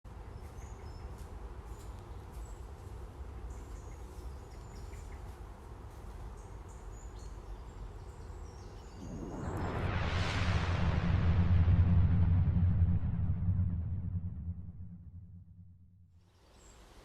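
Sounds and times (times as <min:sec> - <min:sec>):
steady low rumble: 0:08.8 - 0:16.2.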